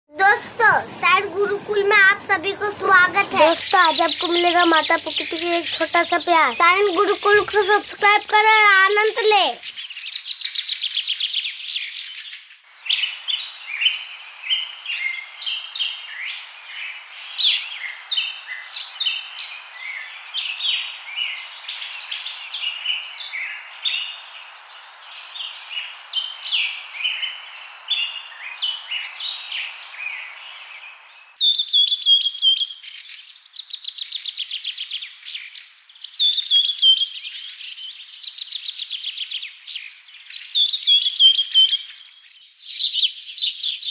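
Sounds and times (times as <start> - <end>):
steady hiss: 0.2 - 9.9, 12.2 - 31.4
fast bird trills: 0.2 - 10.9
birds chirping and singing: 0.3 - 38.0.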